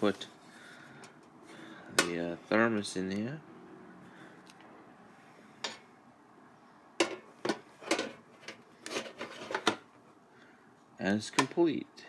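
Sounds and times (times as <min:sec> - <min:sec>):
thermos knocking and clattering: 0:07.0 - 0:09.8.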